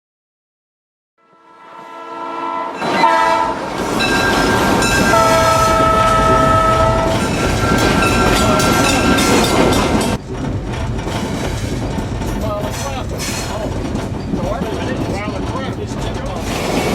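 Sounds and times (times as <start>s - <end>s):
locomotive air horn blasts: 1.2s - 9.1s
rail clatter: 2.7s - 16.9s
diesel locomotive rumble: 2.8s - 16.9s.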